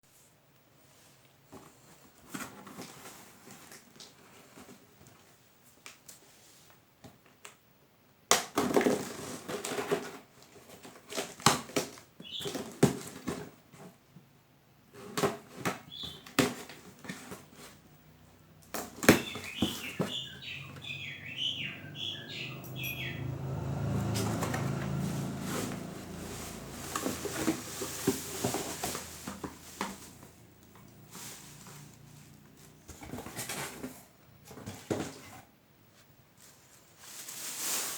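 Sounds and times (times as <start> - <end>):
high squeaky chirps: 19.1 - 23.4
packaging rustling and crinkling: 24.0 - 35.4, 36.4 - 37.9.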